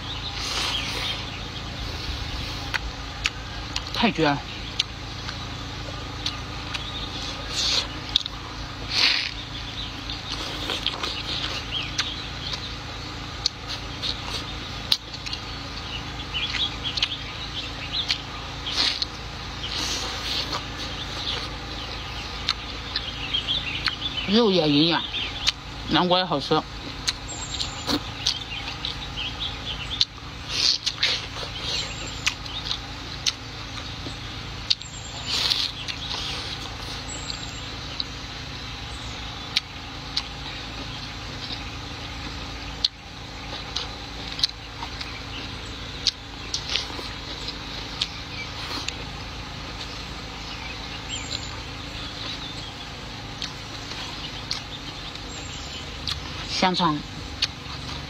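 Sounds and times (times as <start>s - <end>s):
steady low background hum: 0.0s - 58.0s
wet chewing sounds: 0.0s - 58.0s
mouth clicks and smacks: 10.0s - 12.7s, 27.0s - 29.0s, 29.9s - 33.9s, 56.0s - 56.4s, 57.4s - 58.0s.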